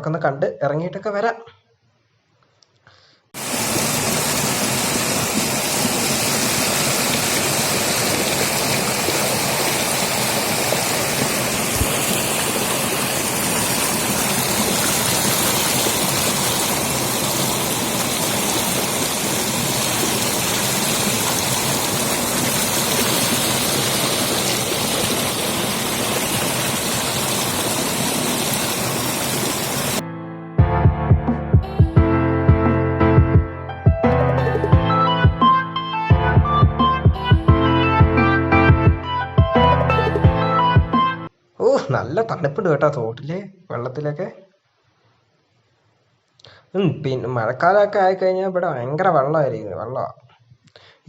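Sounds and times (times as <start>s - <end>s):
small stream flowing: 3.4s - 30.0s.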